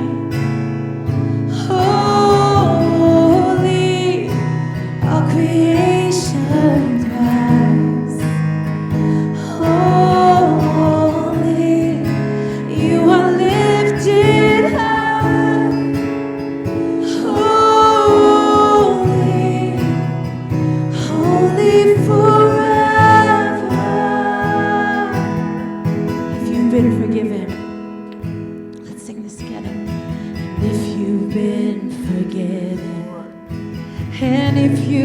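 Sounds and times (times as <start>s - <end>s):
person singing worship music: 0.0s - 27.7s
strummed acoustic guitar: 0.0s - 35.0s.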